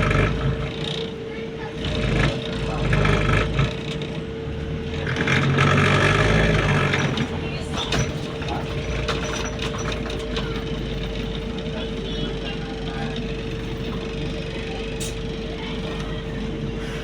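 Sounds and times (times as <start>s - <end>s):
bus drive whine and rumble: 0.0s - 17.0s
interior panels rattling: 5.0s - 17.0s.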